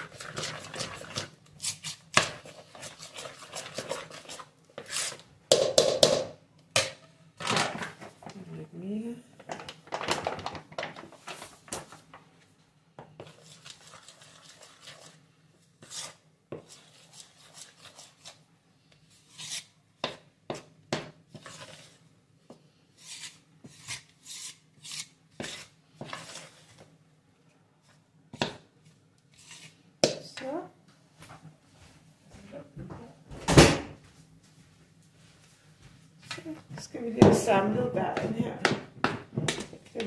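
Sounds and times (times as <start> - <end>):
utensil scraping a bowl: 0.0 - 5.3, 13.2 - 15.2, 15.8 - 18.5, 19.1 - 20.6, 21.3 - 22.0, 22.9 - 26.8, 29.3 - 29.8.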